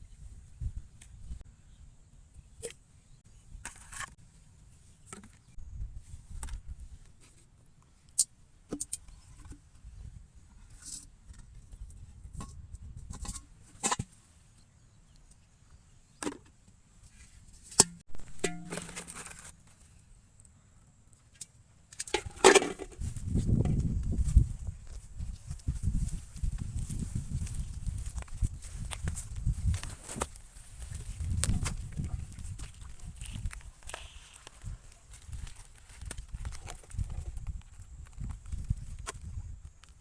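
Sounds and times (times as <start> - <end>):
small objects clicking and rustling: 18.2 - 19.7.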